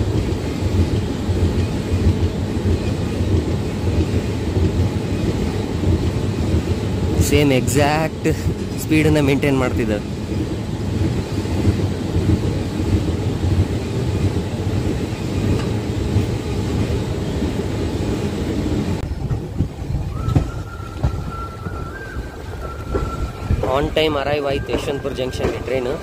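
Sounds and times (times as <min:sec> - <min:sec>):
second train passing alongside: 0:00.0 - 0:26.0
train wheels rumbling on rails: 0:00.0 - 0:26.0
high-pitched train squeal: 0:20.0 - 0:26.0.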